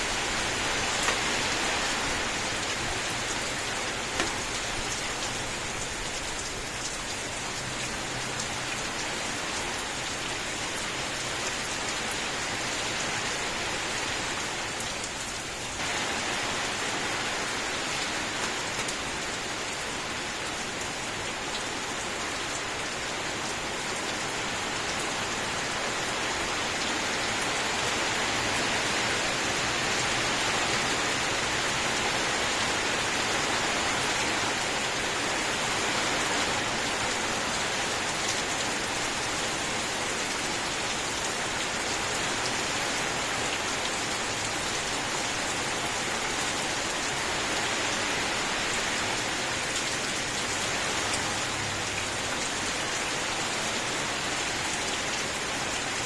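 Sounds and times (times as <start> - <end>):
steady rain hissing: 0.0 - 56.0.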